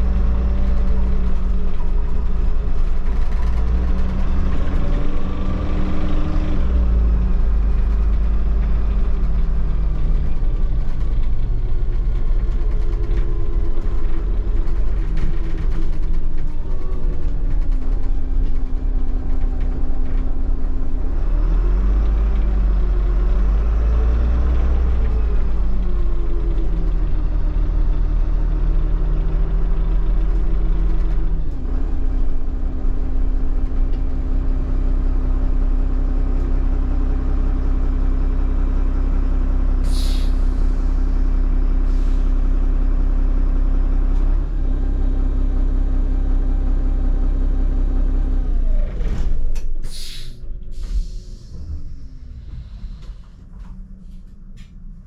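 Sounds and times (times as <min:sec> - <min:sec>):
bus engine running: 0:00.0 - 0:55.0
short air hisses: 0:39.8 - 0:40.6, 0:49.8 - 0:51.6.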